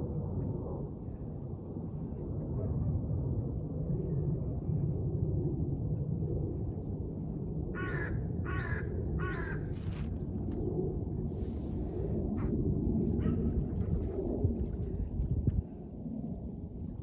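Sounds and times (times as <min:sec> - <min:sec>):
steady low rumble: 0:00.0 - 0:17.0
bird harsh calls: 0:07.8 - 0:09.7.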